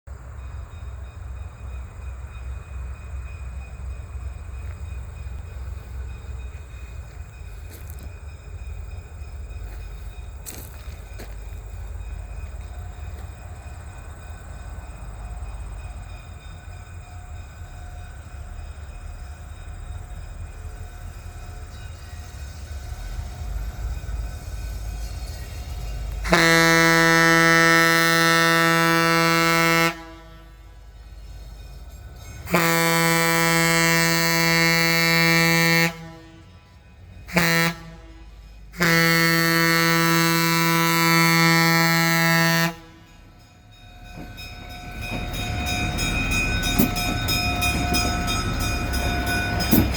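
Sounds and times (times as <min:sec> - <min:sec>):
train rumbling: 0:00.1 - 0:49.9
train horn blast: 0:26.1 - 0:30.9, 0:32.4 - 0:43.4.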